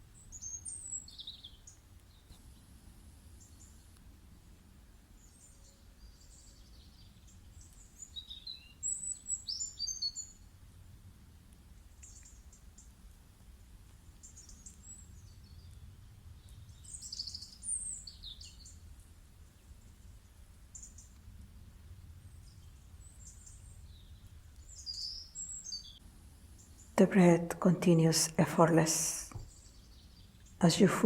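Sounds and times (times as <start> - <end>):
small birds chirping: 0.0 - 10.6, 11.8 - 21.3, 22.2 - 31.0
faint low hum: 8.8 - 31.0.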